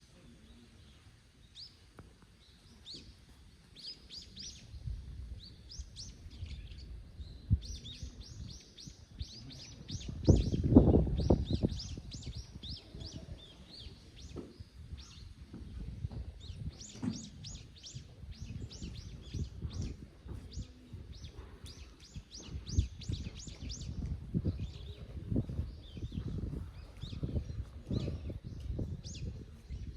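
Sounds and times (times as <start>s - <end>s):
small birds chirping: 0.2s - 29.9s.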